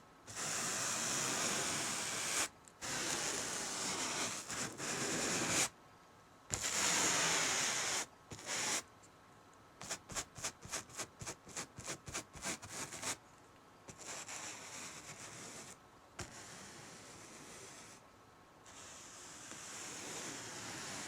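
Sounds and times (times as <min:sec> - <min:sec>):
paint brush strokes on canvas: 0:00.3 - 0:05.7, 0:13.9 - 0:18.0, 0:18.7 - 0:21.0.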